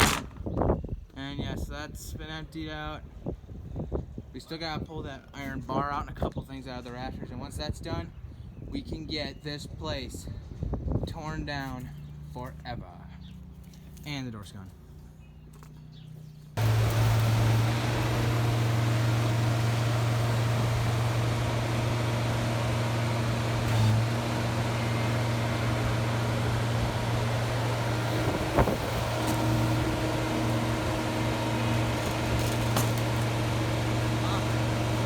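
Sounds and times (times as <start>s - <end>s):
engine running with low hum: 14.7s - 35.0s.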